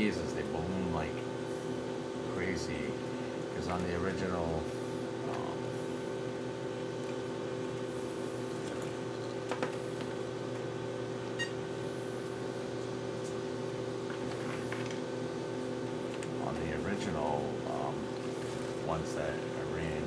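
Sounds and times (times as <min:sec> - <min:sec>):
low electrical fan hum: 0:00.0 - 0:20.0.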